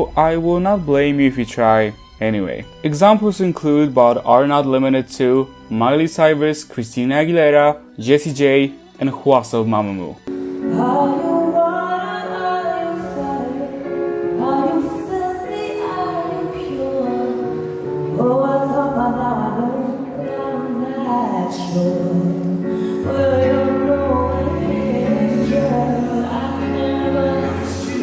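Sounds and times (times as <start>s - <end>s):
instrumental accompaniment: 0.0s - 28.0s
woman singing a pop song: 10.3s - 28.0s.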